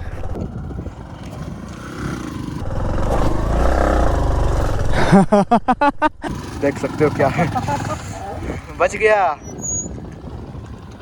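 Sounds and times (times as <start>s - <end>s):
motorcycle engine revving hard: 0.5s - 5.2s, 6.2s - 8.8s.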